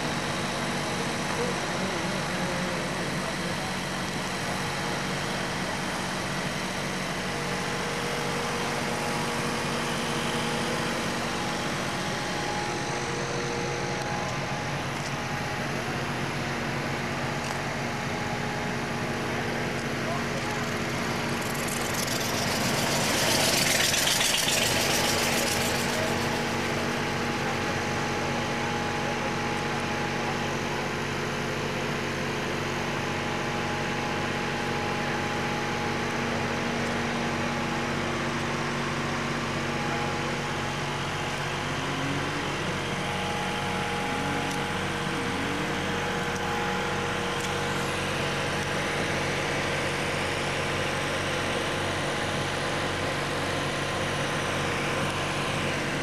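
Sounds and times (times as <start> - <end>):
dragster engine idling: 0.0 - 31.0.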